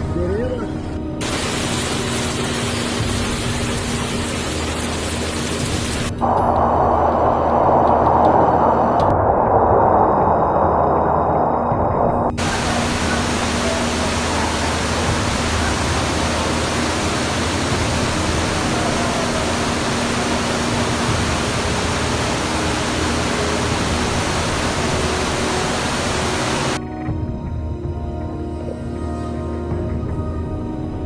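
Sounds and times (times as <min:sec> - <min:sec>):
loud steady rushing noise: 0:01.2 - 0:09.2, 0:10.4 - 0:26.8.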